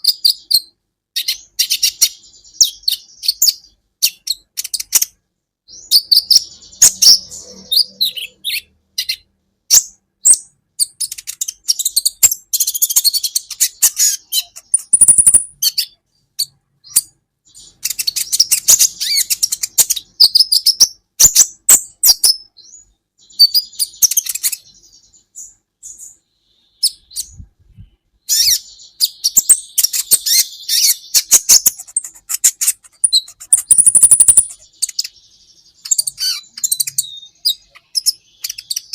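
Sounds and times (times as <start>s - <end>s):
sunbird chirping and trilling: 0.0s - 38.9s
thin high bird whistle: 12.6s - 15.5s, 28.3s - 35.2s.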